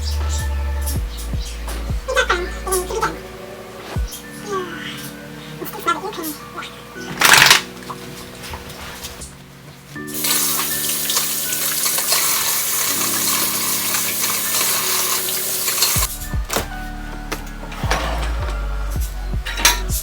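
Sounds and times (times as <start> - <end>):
soft background music: 0.0 - 20.0
tap water running into sink: 10.2 - 16.1.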